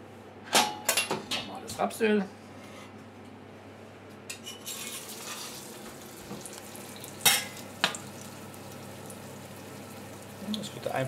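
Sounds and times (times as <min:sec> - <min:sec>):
patty sizzling in hot oil: 0:04.7 - 0:11.0.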